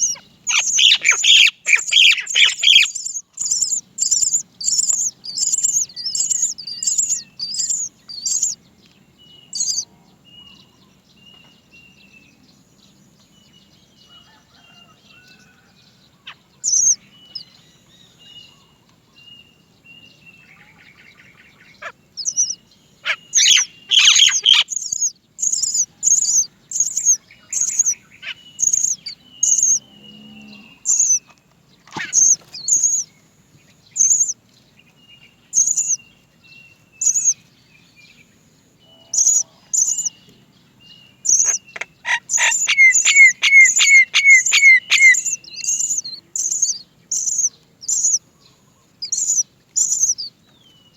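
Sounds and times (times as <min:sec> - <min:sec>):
bird chick begging cries: 0:00.0 - 0:08.6, 0:09.5 - 0:09.9, 0:16.2 - 0:18.2, 0:20.4 - 0:29.8, 0:30.8 - 0:33.1, 0:34.0 - 0:34.4, 0:35.5 - 0:36.0, 0:37.0 - 0:37.4, 0:39.0 - 0:40.3, 0:41.2 - 0:50.3.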